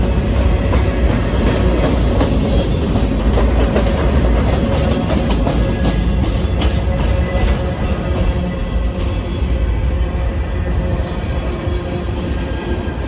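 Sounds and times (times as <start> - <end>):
wheels clicking over rail joints: 0.0 - 8.6
train rumble: 0.0 - 13.0.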